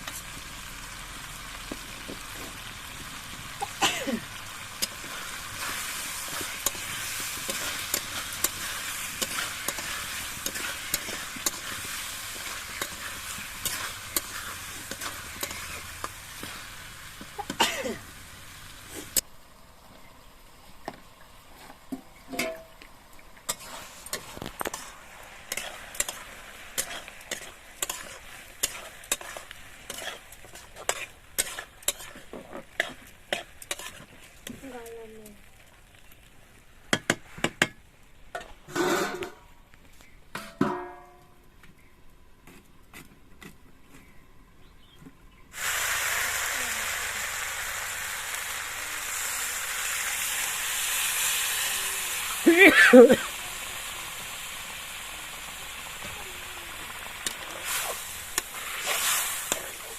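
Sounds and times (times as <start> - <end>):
food sizzling in hot oil: 0.0 - 19.2, 21.4 - 39.2, 45.5 - 59.9
spatula scraping a pan: 4.7 - 17.6, 23.5 - 34.6, 38.4 - 39.4, 57.2 - 59.9.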